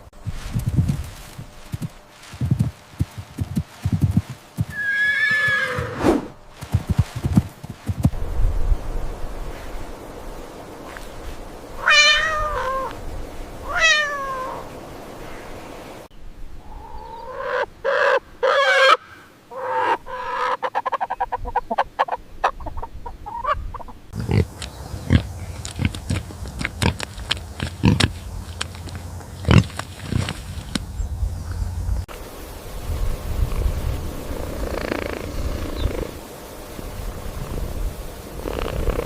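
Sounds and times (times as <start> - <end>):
cat meowing: 11.8 - 12.9, 13.7 - 14.6.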